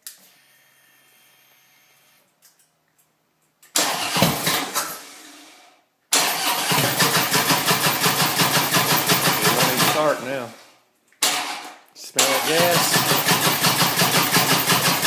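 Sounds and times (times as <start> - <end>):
motorcycle engine cranking: 3.8 - 4.8, 6.2 - 10.2, 11.2 - 15.0.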